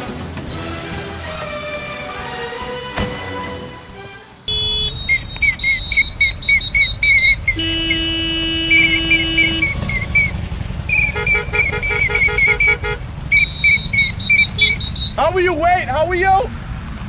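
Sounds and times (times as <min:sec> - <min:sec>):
car alarm siren: 0:04.5 - 0:15.2.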